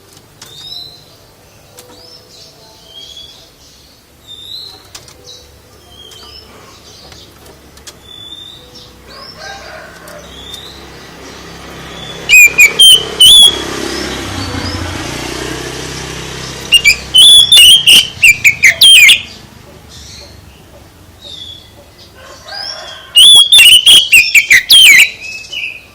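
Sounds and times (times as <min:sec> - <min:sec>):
songbird singing: 0:00.0 - 0:25.9.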